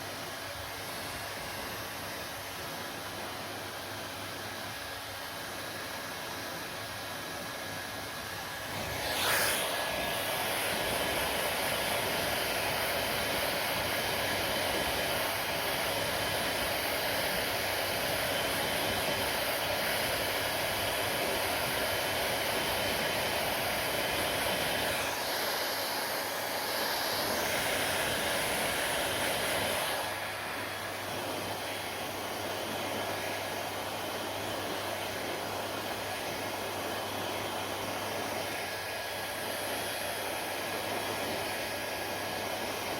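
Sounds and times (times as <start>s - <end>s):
hair dryer blowing: 0.0s - 42.9s.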